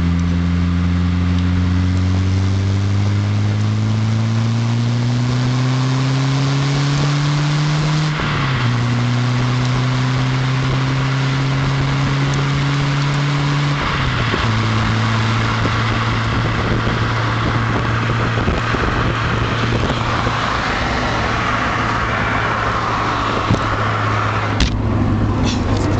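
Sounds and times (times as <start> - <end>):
car engine accelerating: 0.0 - 25.9
road noise: 0.0 - 25.9
wind noise: 5.1 - 25.9.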